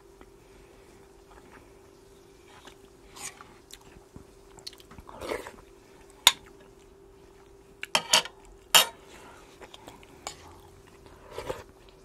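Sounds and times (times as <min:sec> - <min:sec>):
man chewing food: 0:00.2 - 0:12.0.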